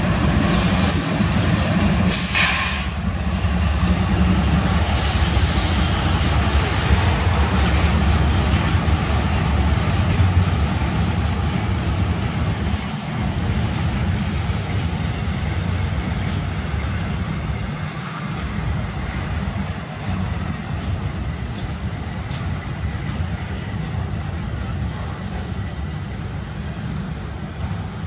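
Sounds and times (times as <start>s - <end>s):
train wheels rumbling and rattling: 0.0s - 28.0s.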